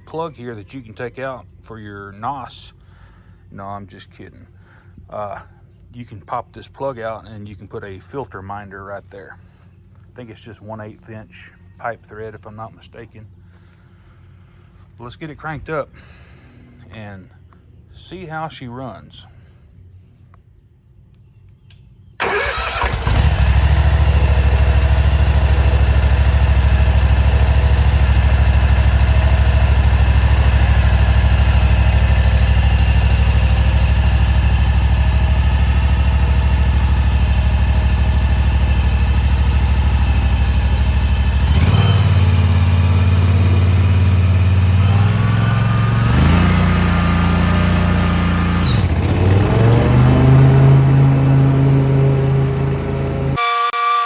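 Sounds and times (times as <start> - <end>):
mower engine starting and running: 22.2 - 54.0.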